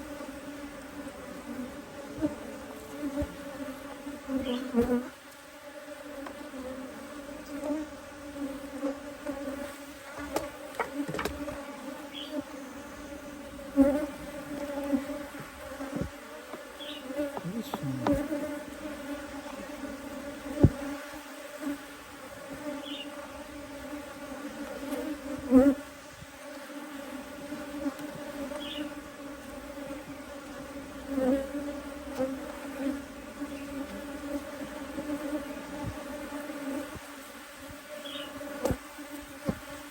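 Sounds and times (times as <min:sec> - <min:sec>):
honeybees buzzing: 0:00.0 - 0:39.9
sharp knocks and clicks: 0:10.3 - 0:11.5.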